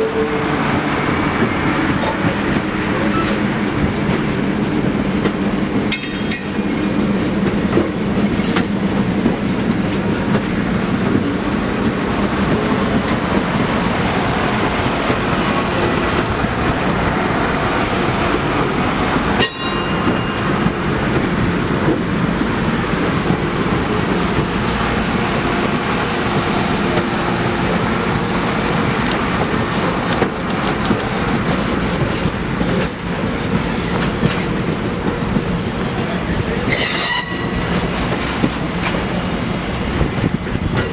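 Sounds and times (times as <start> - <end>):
train wheels rumbling on rails: 0.0 - 40.9
high metallic wheel squeal: 28.5 - 35.4, 36.0 - 38.7, 40.2 - 40.9.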